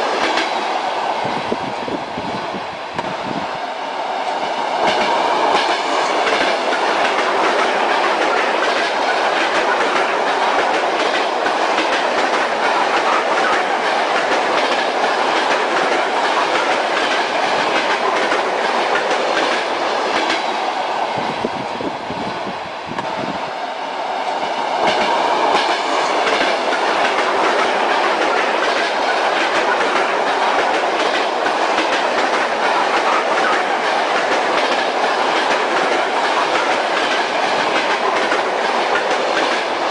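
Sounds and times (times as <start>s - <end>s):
train wheels clacking on rails: 0.0s - 1.7s, 2.9s - 21.8s, 22.9s - 39.9s.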